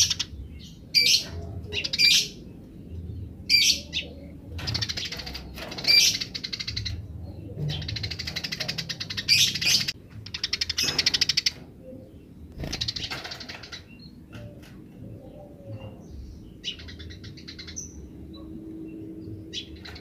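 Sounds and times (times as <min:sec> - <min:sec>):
sparrow chirps: 0:00.0 - 0:20.0
sparrow chattering trills: 0:03.4 - 0:18.5.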